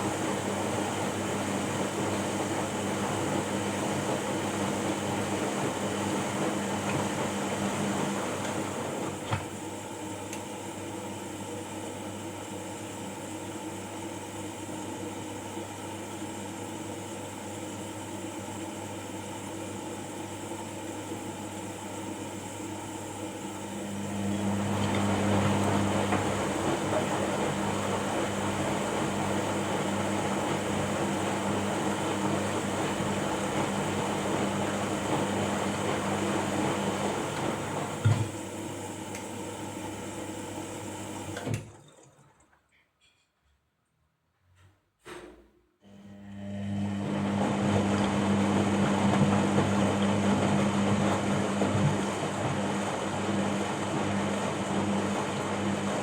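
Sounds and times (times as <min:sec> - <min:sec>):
washing machine motor hum: 0:00.0 - 0:42.7, 0:45.8 - 0:56.0
washing machine click: 0:36.2 - 0:38.4.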